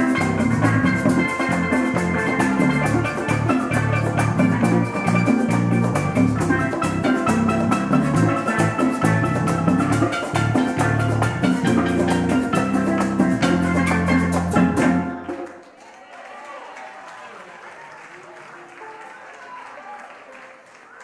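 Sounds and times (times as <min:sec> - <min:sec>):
fast drum beat: 0:00.0 - 0:15.4
worship band playing: 0:00.0 - 0:15.7.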